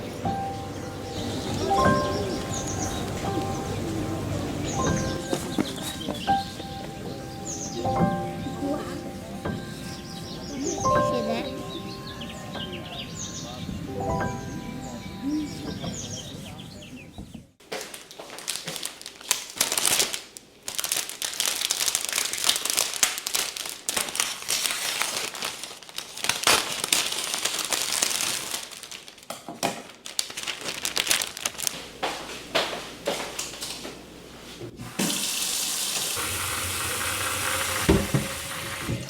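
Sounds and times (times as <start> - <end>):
wrapping crinkling: 4.8 - 6.4, 17.6 - 32.8.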